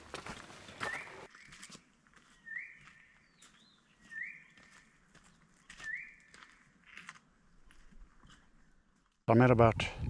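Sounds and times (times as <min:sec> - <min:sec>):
bird whistled call: 0:00.8 - 0:01.6, 0:02.4 - 0:03.4, 0:04.0 - 0:04.6, 0:05.8 - 0:06.3.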